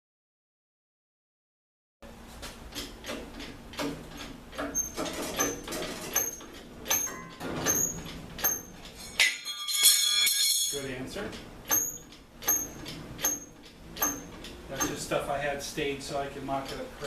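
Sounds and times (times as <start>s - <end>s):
ringing squeal: 11.7s - 14.3s.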